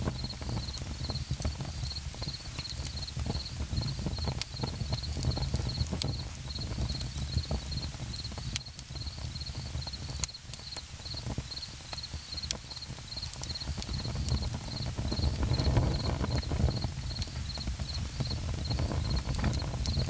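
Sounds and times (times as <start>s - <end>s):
campfire crackling and popping: 0.0s - 20.0s
insect chirping trills: 9.0s - 19.2s.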